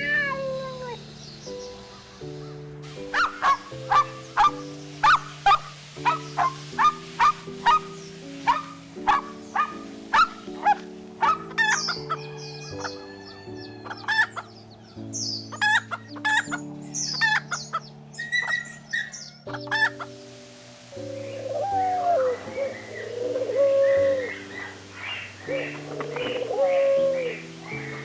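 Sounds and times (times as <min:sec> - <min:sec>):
soft background music: 0:00.0 - 0:28.0
chickens clucking: 0:03.1 - 0:07.9, 0:08.5 - 0:20.2
dog barking: 0:03.1 - 0:11.6
rooster crowing: 0:11.7 - 0:14.4.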